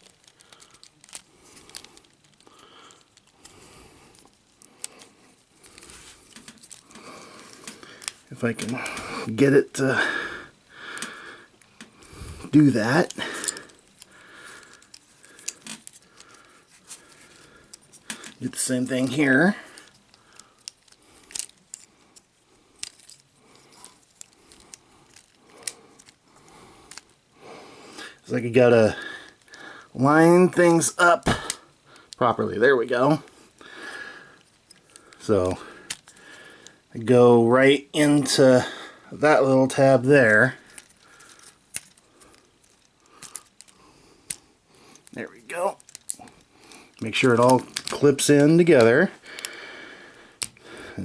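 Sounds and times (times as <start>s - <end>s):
plastic parts clicking: 0.0s - 9.1s, 10.9s - 11.9s, 12.5s - 27.3s, 33.0s - 36.9s, 40.4s - 49.6s, 50.4s - 50.6s
plastic action figure clicking: 35.9s - 36.2s, 45.0s - 48.8s.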